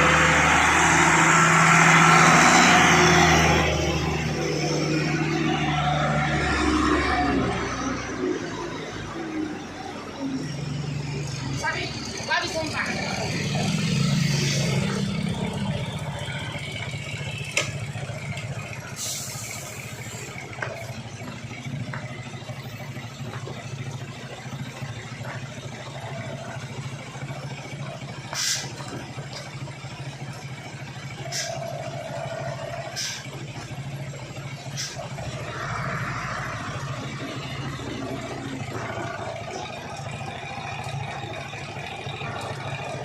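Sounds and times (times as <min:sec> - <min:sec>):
diesel truck engine running: 0:00.0 - 0:43.0
short air hiss: 0:28.4 - 0:28.7.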